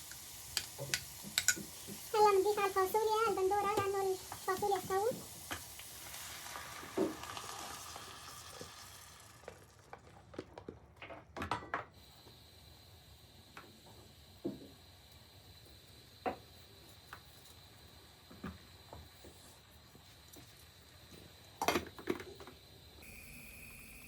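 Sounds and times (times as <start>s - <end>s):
utensil clicking and knocking in pot: 0.0s - 2.0s
green beans sizzling in a pot: 0.0s - 10.4s, 12.0s - 23.1s.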